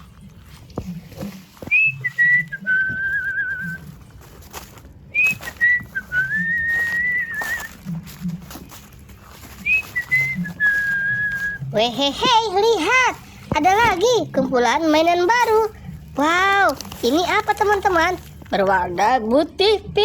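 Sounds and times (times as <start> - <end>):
person whistling a tune: 1.7 - 3.9, 5.1 - 7.8, 9.6 - 11.8.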